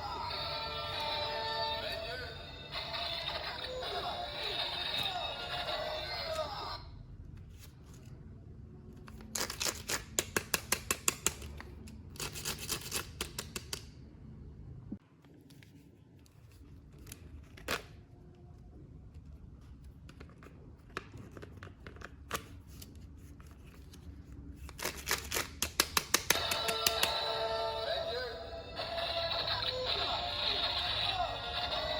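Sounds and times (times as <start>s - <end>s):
packaging snipping and tearing: 9.1s - 13.8s.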